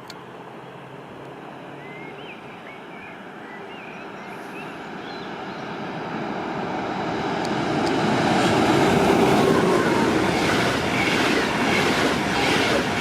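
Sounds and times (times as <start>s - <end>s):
small birds chirping: 1.7s - 5.7s
train rumble: 4.5s - 13.0s.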